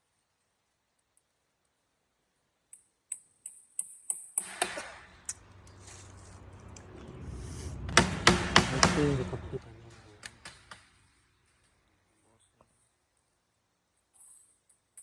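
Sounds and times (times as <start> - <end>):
low steady hum: 5.3 - 11.2
sharp evenly spaced taps: 7.9 - 9.4.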